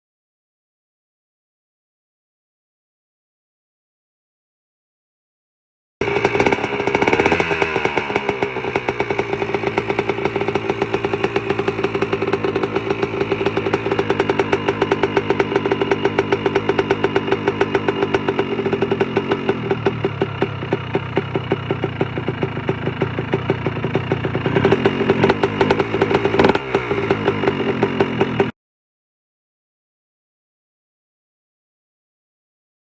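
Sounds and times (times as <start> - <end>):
engine throttle blips: 6.0 - 28.5
two-stroke engine idling: 6.0 - 28.5.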